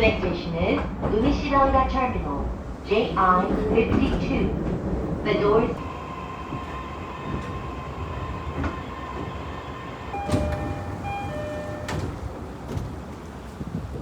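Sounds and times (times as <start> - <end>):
train rumble and whine: 0.0 - 14.0
two-note electronic chime: 10.2 - 12.0.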